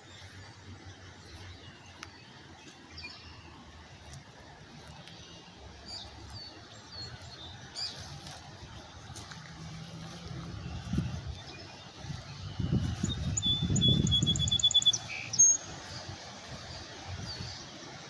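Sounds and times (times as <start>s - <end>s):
birds chirping: 0.0s - 18.0s
low outdoor rumble: 5.8s - 13.3s.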